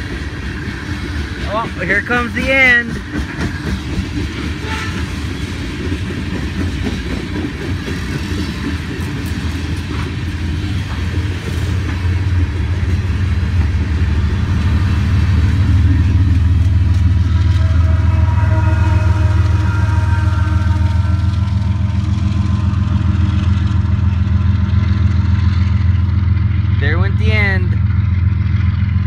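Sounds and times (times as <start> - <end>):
diesel locomotive drone: 0.0 - 29.0
freight train wheels clattering on rails: 0.0 - 29.0
steady whine: 10.8 - 29.0.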